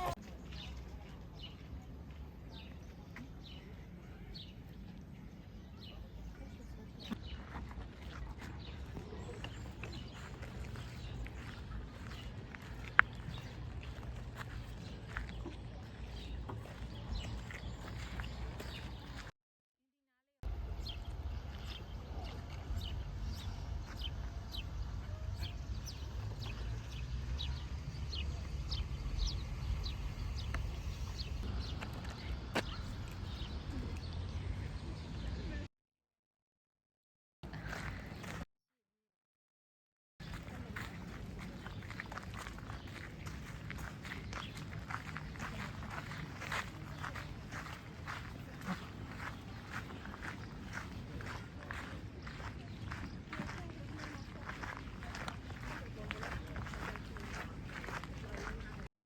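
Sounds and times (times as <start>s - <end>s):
low outdoor rumble: 0.0s - 19.3s, 20.5s - 35.7s, 40.2s - 58.9s
bird chirping: 40.2s - 58.8s.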